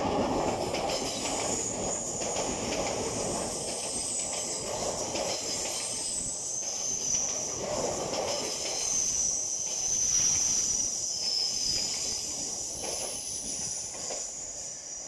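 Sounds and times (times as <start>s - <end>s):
train electric whine: 0.0s - 15.0s
train wheel rolling noise: 0.0s - 15.0s.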